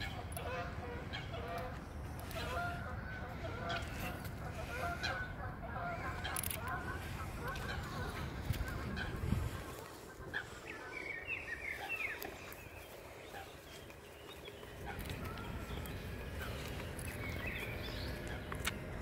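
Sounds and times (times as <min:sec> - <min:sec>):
birds chirping: 0:00.0 - 0:19.0
low outdoor rumble: 0:00.0 - 0:19.0.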